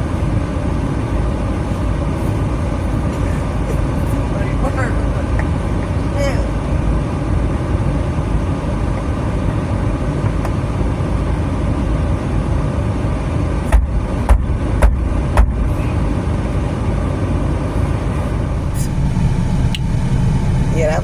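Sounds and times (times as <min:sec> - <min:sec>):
vehicle running noise: 0:00.0 - 0:21.0
sharp knocks: 0:13.7 - 0:15.8.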